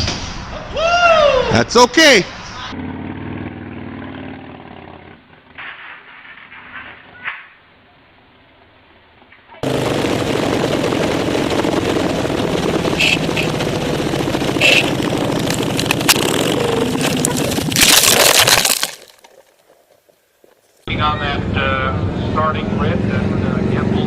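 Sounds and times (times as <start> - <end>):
motorcycle engine running: 2.8 - 5.5, 9.6 - 17.7.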